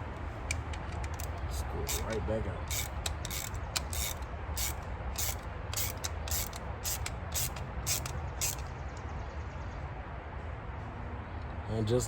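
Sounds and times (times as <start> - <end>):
steady low rumble: 0.0 - 10.9
screw rasping scrapes: 1.9 - 8.6.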